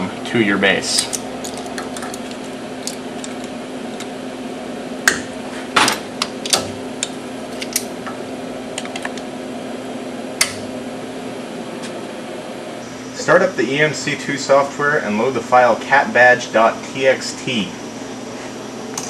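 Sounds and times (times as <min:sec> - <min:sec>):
steady hum: 0:00.0 - 0:19.0
metal clicks and clanks: 0:00.9 - 0:04.1.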